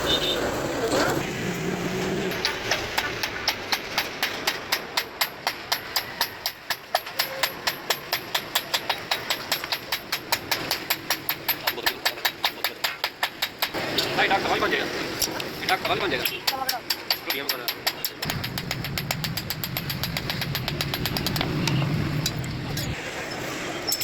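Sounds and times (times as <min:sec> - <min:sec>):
rapid hammer strikes: 0:02.2 - 0:13.9, 0:15.6 - 0:23.0.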